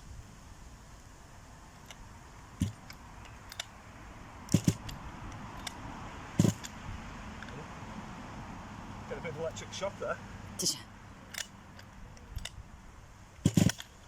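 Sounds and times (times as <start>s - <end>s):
hard objects clicking and knocking: 2.6s - 3.8s, 4.5s - 5.8s, 6.4s - 6.8s, 11.3s - 12.6s, 13.4s - 14.0s.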